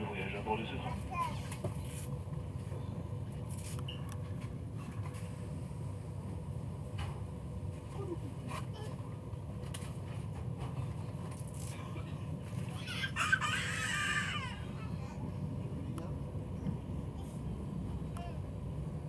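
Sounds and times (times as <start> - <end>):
train coach rumbling: 0.0 - 19.0
child crying out: 12.8 - 15.1.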